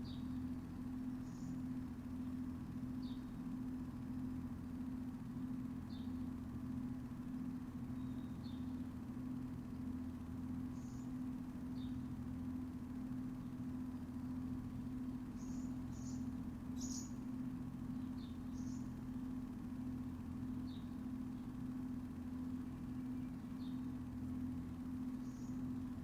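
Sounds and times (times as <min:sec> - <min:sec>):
low mechanical hum: 0:00.0 - 0:26.0
high bird chirps: 0:16.8 - 0:17.2.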